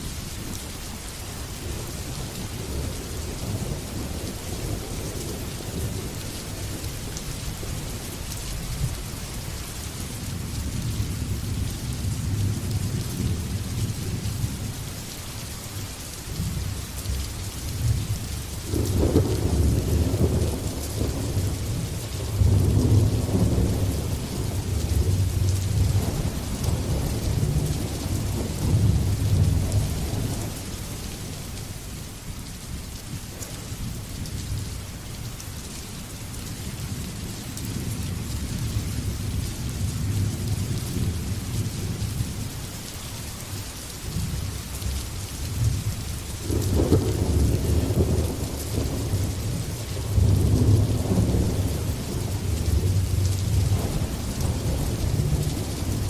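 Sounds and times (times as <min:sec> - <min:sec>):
rain hiss: 0:00.0 - 0:56.0
rolling thunder: 0:18.7 - 0:30.7, 0:45.6 - 0:56.0.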